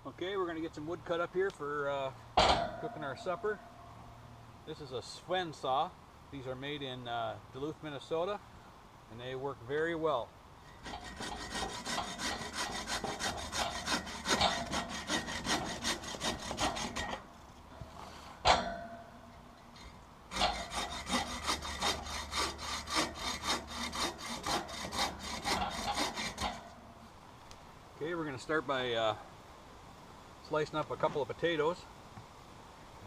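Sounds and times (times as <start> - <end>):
bow saw cutting wood: 10.8 - 17.3, 20.3 - 26.8.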